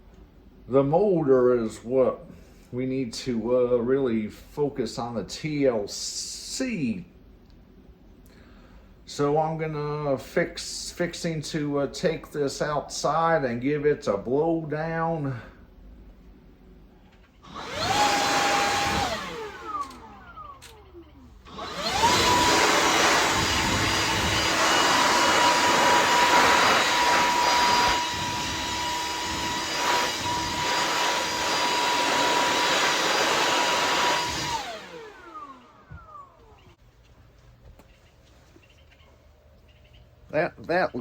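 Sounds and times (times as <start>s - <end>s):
leaf blower whining: 17.4s - 36.8s.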